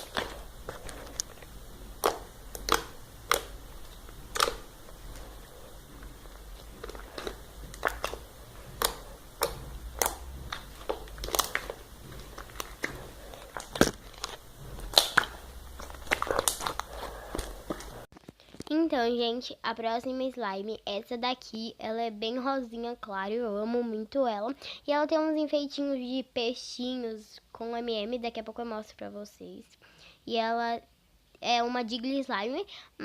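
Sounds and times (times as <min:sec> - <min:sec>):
slime clicking and popping: 0:00.0 - 0:18.0.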